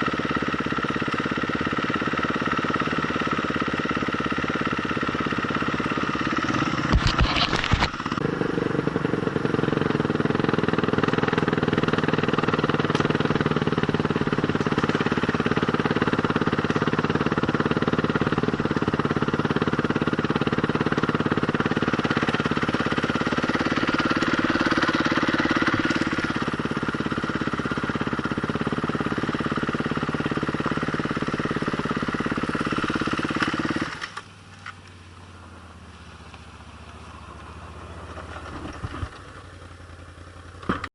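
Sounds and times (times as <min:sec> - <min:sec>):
motorcycle engine running: 0:00.0 - 0:40.9
sharp knocks and rattles: 0:06.7 - 0:08.2.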